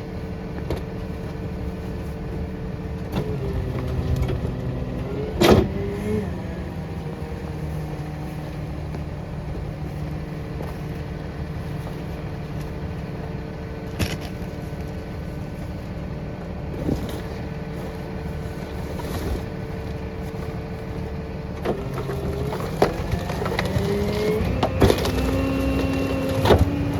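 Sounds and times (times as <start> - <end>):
hydraulic whine: 16.7 - 26.9.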